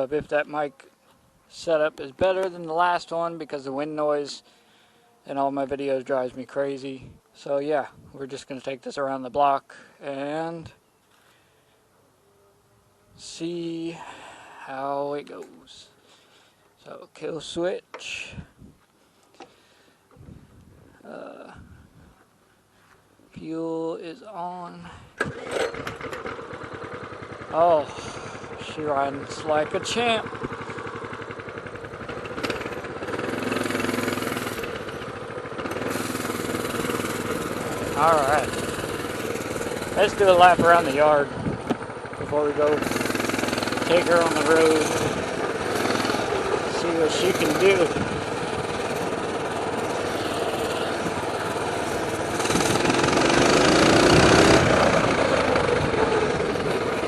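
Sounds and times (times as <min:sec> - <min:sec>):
mini bike engine running: 0:25.2 - 0:57.0.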